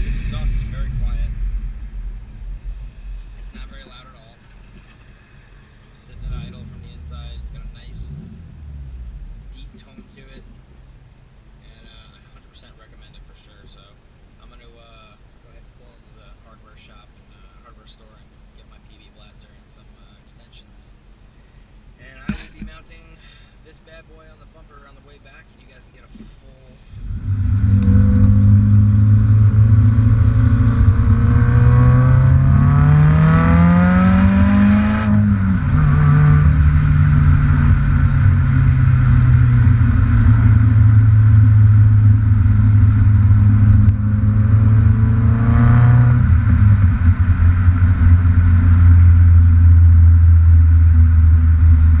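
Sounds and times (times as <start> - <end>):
car engine revving: 0.0 - 13.6, 26.2 - 52.0.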